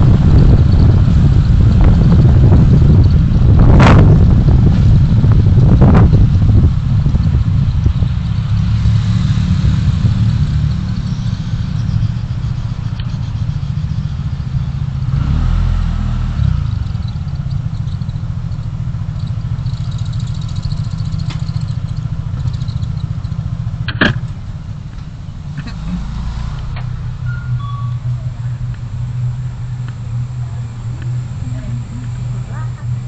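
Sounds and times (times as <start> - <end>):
car engine and road noise: 0.0 - 33.0.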